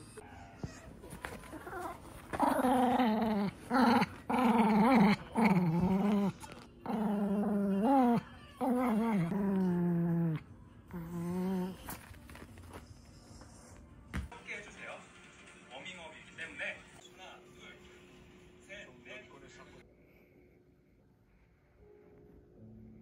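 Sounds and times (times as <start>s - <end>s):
dog growling in play: 1.2s - 12.2s.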